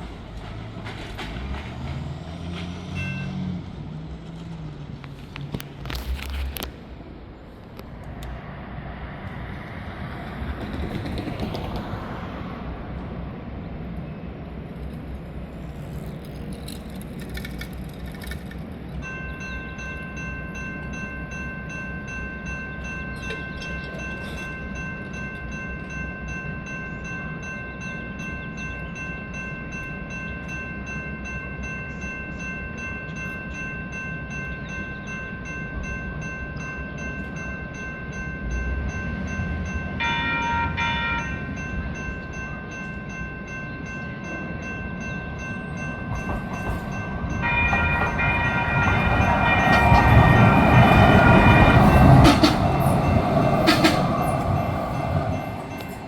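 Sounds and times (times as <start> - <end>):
light rail train rumbling: 0.0 - 56.0
electronic crossing warning bell: 2.9 - 3.6, 19.0 - 56.0.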